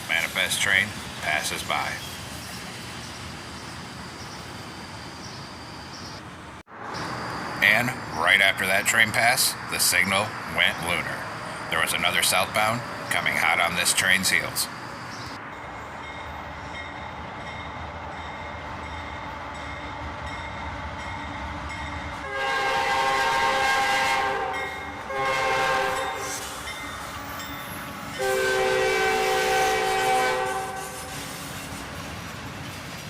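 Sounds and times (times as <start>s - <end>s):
train rumbling: 0.0s - 33.0s
locomotive air horn blasts: 22.2s - 26.6s, 28.2s - 31.3s.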